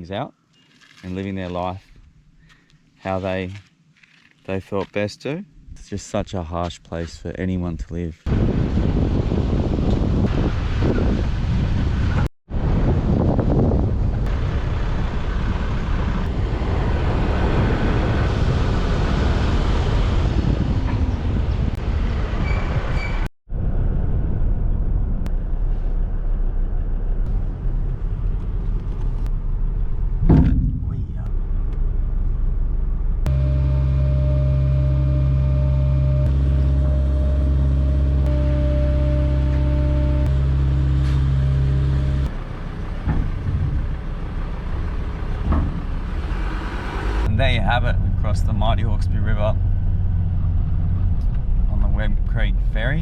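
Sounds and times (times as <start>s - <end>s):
vehicle rumbling: 0.0s - 53.0s
brief high tone: 33.3s - 42.2s.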